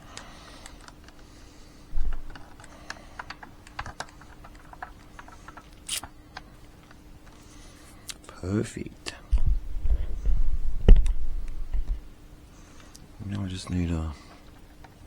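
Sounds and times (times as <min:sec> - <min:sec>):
plastic parts clicking and tapping: 0:00.2 - 0:01.3, 0:02.0 - 0:07.4.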